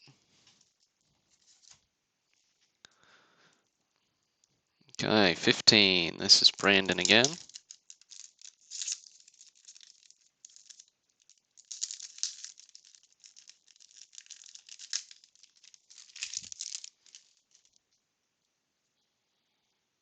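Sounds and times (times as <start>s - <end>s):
cardboard cards rustling: 5.4s - 17.8s
wax paper pack crinkling: 5.8s - 17.8s.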